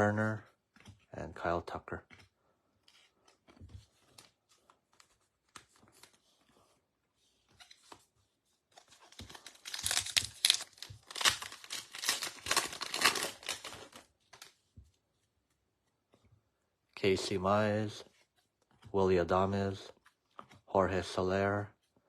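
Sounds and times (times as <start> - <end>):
wrapper tearing and crinkling: 8.9 - 14.5.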